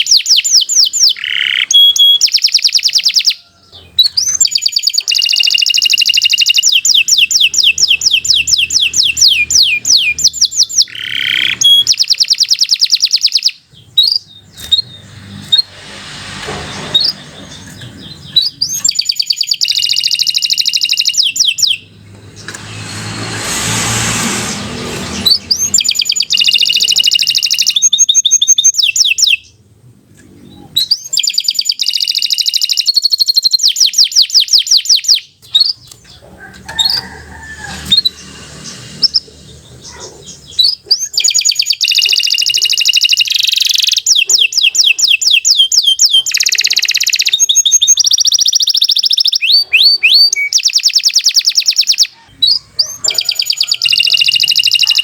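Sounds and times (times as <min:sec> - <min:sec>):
canary singing in trills: 0:00.0 - 0:55.0
rushing noise: 0:07.0 - 0:11.8, 0:14.3 - 0:18.8, 0:21.2 - 0:27.3, 0:36.4 - 0:40.7.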